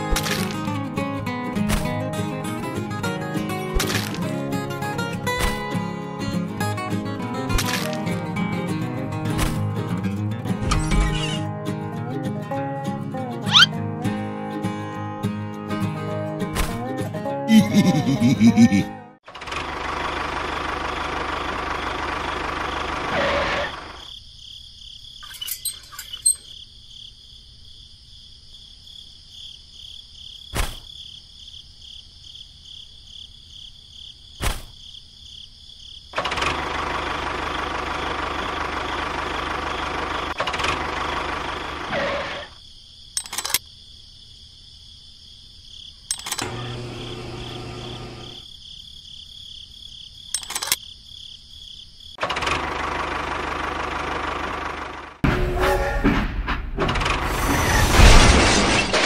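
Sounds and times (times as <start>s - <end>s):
engine running: 17.6s - 24.0s, 36.2s - 42.5s, 46.1s - 48.4s, 52.2s - 55.2s
sharp clicks: 43.2s - 43.6s, 46.1s - 46.5s, 50.3s - 50.8s.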